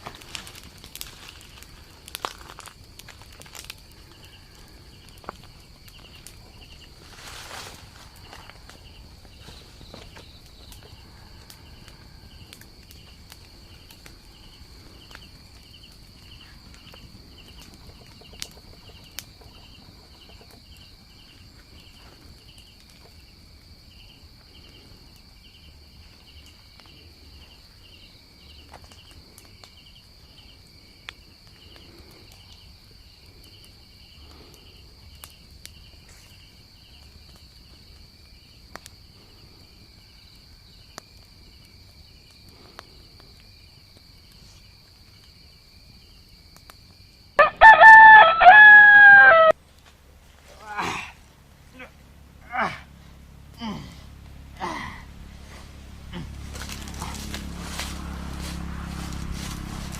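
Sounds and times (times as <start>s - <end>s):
insect drone: 0.0s - 59.9s
insect chirping rhythmically: 1.1s - 7.0s, 8.2s - 47.4s
low rumble: 51.2s - 59.9s.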